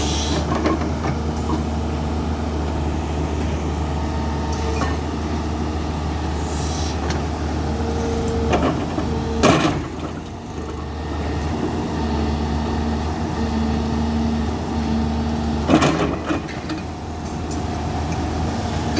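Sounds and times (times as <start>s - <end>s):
excavator diesel engine drone: 0.0s - 18.9s.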